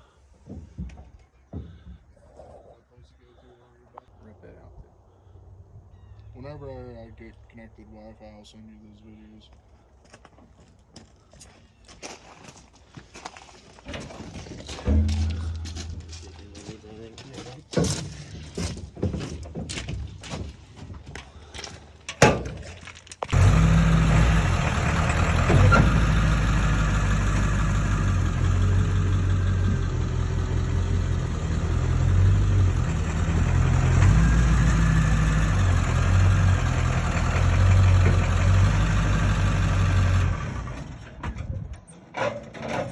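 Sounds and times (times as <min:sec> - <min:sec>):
sharp knock: 0:14.9 - 0:16.3
vehicle engine running: 0:14.9 - 0:16.8, 0:23.4 - 0:41.2.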